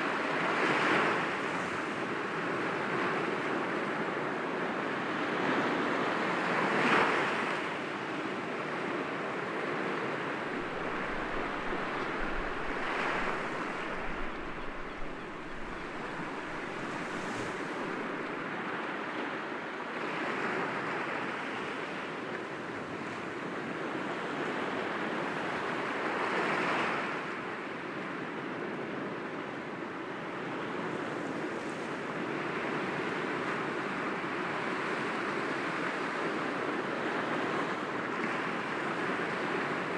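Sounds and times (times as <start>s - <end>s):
waves breaking against rocks: 10.5s - 18.5s.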